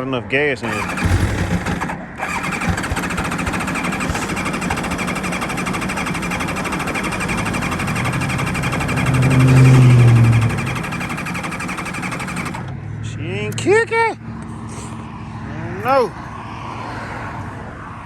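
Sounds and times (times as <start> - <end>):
motorcycle starter cranking: 0.6 - 12.7.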